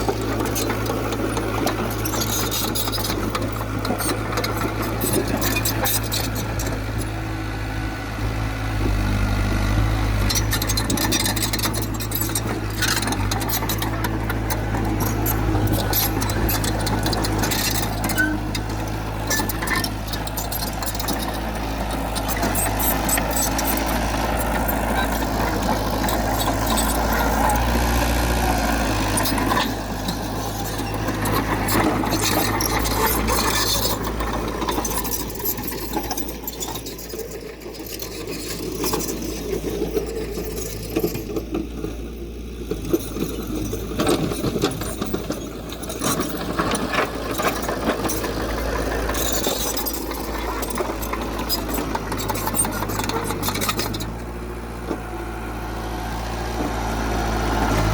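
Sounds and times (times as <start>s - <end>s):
heavy machinery diesel engine: 0.0s - 57.9s
rattling and clanking: 10.1s - 55.1s.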